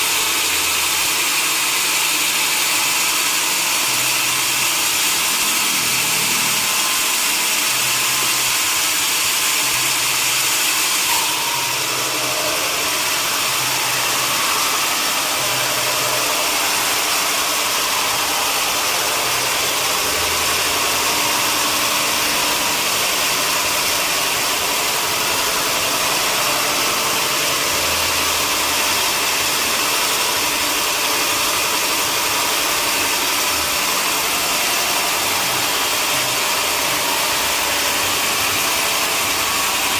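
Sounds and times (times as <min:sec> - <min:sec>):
sawmill machinery hiss and drone: 0:00.0 - 0:39.9.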